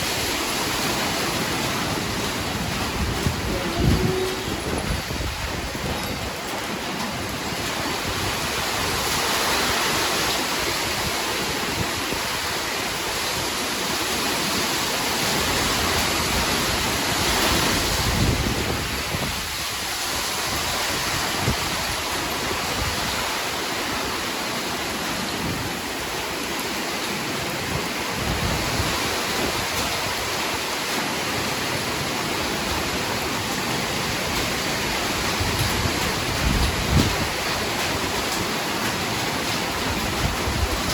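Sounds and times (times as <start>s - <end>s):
heavy rain falling: 0.0s - 40.9s
thunder rumble: 1.4s - 9.0s, 34.4s - 38.7s.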